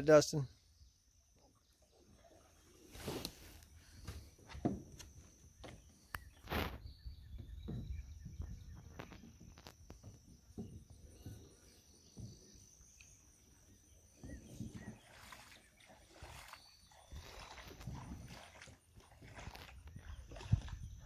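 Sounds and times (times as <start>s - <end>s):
light water sounds: 1.1s - 6.8s, 14.1s - 21.0s.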